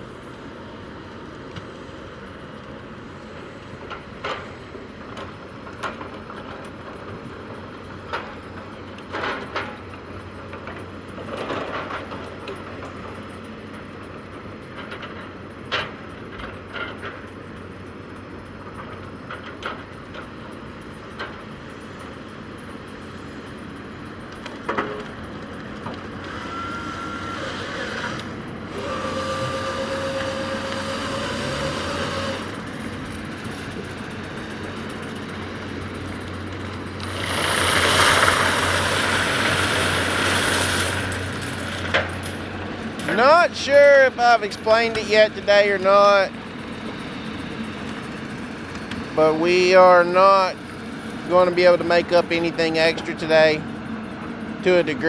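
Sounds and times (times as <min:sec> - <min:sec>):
diesel engine running: 0:00.0 - 0:55.0
steady whine: 0:17.3 - 0:55.0.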